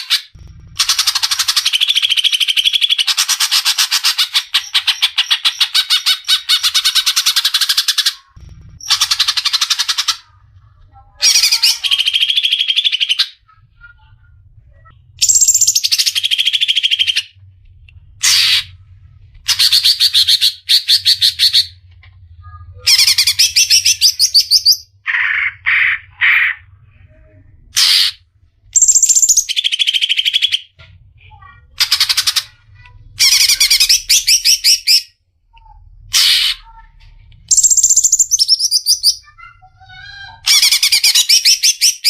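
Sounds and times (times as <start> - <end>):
bird singing trilled phrases: 11.2 - 17.4, 28.8 - 30.7, 33.2 - 35.2, 37.5 - 42.0.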